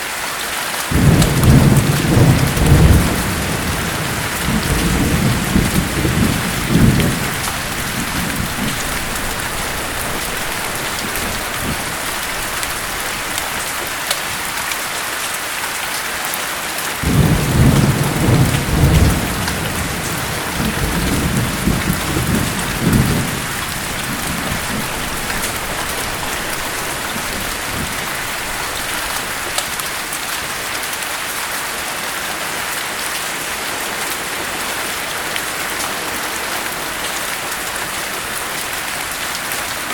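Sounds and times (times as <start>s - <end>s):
heavy rain falling: 0.0s - 39.9s
rolling thunder: 0.9s - 14.7s, 17.0s - 30.7s.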